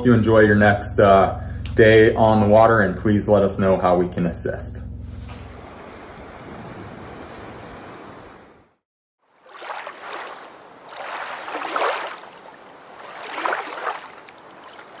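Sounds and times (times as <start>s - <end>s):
river water rushing: 9.4s - 15.0s.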